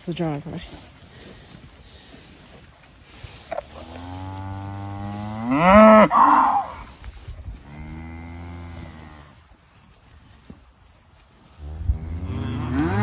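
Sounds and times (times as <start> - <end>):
cow mooing: 12.0 - 13.0.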